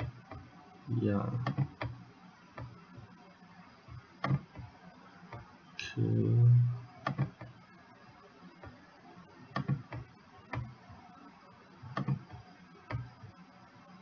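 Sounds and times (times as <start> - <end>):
computer mouse clicking: 1.4 - 2.0, 7.0 - 7.6, 9.6 - 10.8, 11.9 - 13.1.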